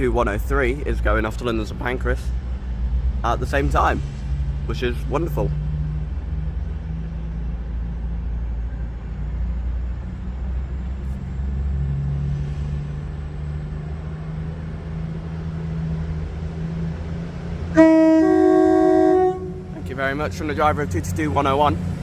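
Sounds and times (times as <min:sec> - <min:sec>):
diesel train drone: 0:00.0 - 0:22.0
two-tone train horn: 0:17.7 - 0:19.8.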